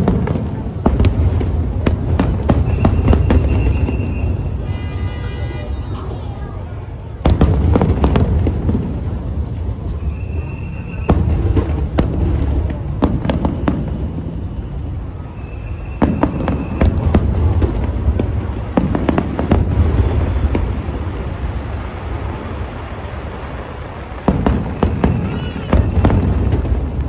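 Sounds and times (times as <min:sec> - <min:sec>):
fireworks bangs: 0:00.0 - 0:27.0
deep rumble of booms: 0:16.0 - 0:27.0.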